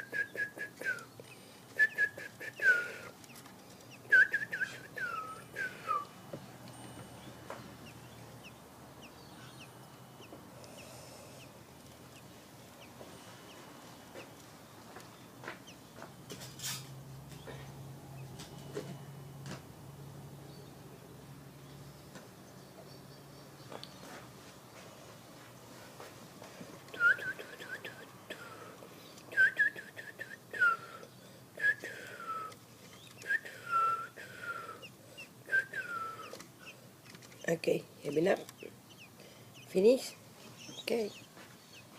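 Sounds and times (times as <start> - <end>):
bird calling: 0.0 - 6.1, 31.8 - 36.8.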